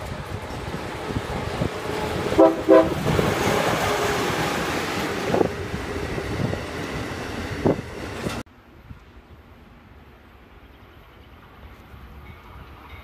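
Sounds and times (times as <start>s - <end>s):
train rushing past on rails: 0.0s - 8.5s
train horn blasts: 2.3s - 3.2s.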